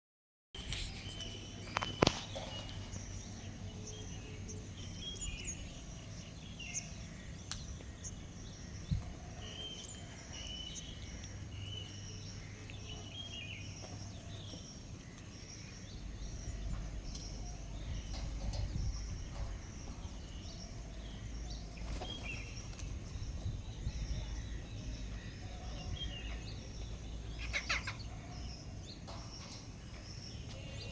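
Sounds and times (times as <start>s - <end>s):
birds chirping: 0.6s - 30.9s.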